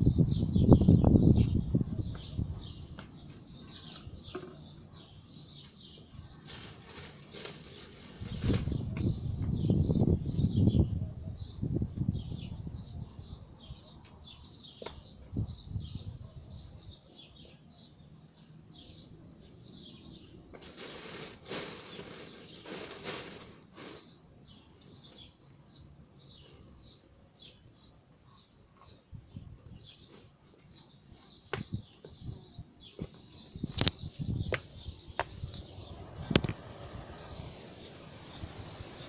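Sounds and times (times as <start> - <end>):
small birds chirping: 0.0 - 39.0
rustling: 6.3 - 8.8, 20.5 - 24.2.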